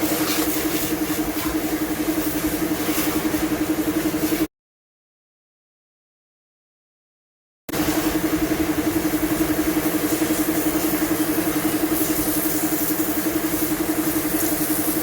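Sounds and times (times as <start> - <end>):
motor running with fast pulse: 7.8 - 15.0.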